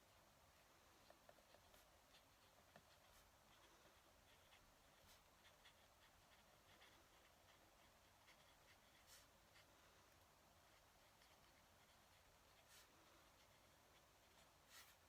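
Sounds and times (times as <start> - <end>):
pen nib scratching paper: 1.0 - 9.7, 10.5 - 15.0.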